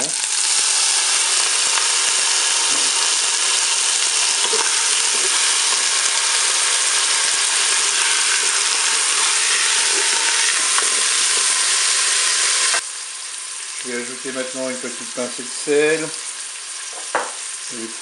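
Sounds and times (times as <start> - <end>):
meat and onion sizzling: 0.0 - 18.0.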